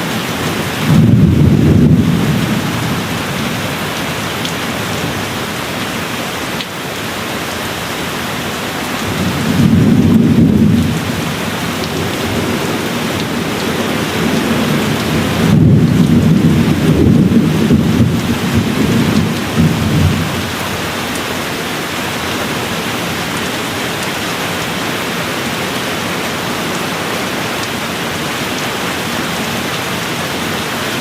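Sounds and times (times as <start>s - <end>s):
steady rain falling: 0.0s - 31.0s
low thunder rolling: 0.8s - 5.4s, 9.0s - 20.8s.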